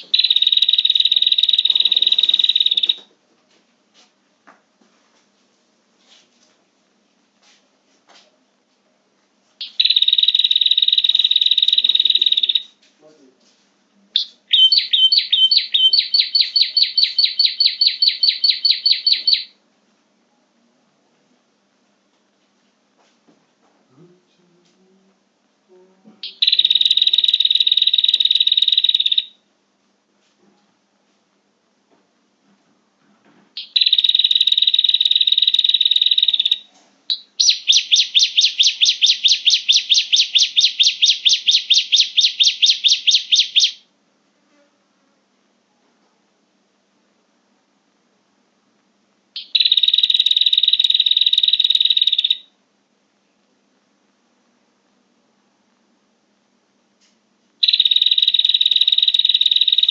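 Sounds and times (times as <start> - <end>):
bird calling sharp chirps: 0.0 - 3.0, 9.6 - 12.7, 14.2 - 19.6, 26.2 - 29.4, 33.6 - 43.8, 49.4 - 52.5, 57.6 - 59.9.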